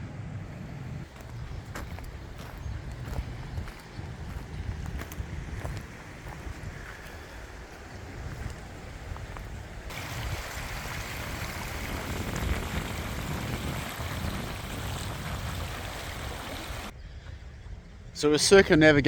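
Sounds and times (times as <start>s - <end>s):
wind rumbling on microphone: 0.0s - 18.1s
running water rushing: 9.9s - 16.9s.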